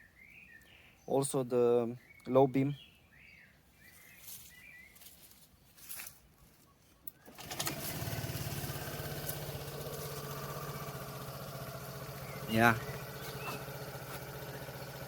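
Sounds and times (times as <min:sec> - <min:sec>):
scooter engine starting and idling: 0:07.1 - 0:15.0.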